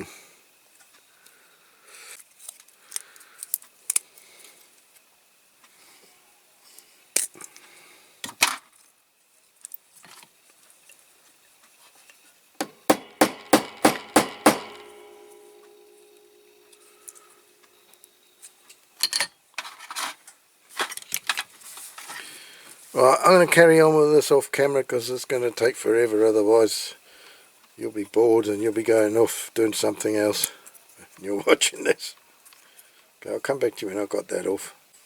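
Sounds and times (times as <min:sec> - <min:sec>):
sharp metal taps ringing: 0:12.6 - 0:17.2.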